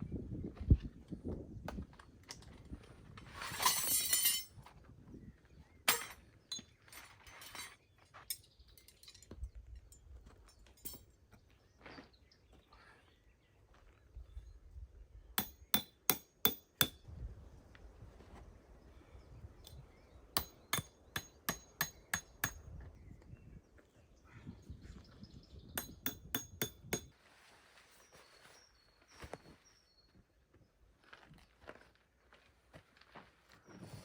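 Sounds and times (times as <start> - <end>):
sharp metallic clinking: 3.6 - 4.5, 5.9 - 11.2.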